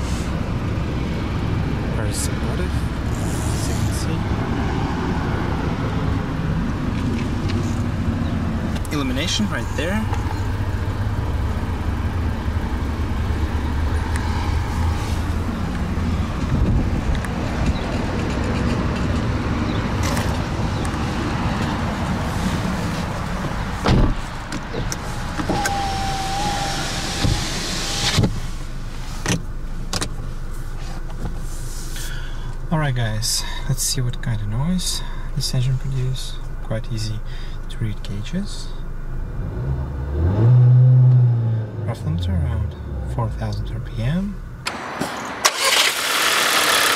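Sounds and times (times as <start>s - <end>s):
car engine idling: 5.2s - 39.3s, 41.8s - 46.9s
car door shutting: 23.4s - 28.4s.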